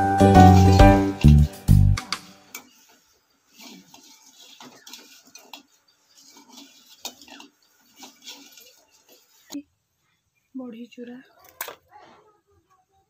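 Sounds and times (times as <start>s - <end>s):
metal spatula scraping a pan: 0.1s - 1.8s, 2.5s - 9.6s.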